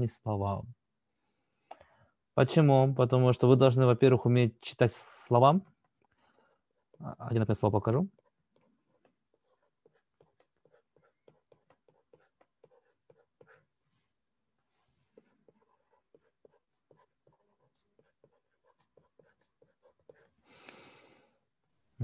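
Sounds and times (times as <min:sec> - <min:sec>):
pen scratching while writing: 0:08.1 - 0:13.7, 0:15.1 - 0:20.4.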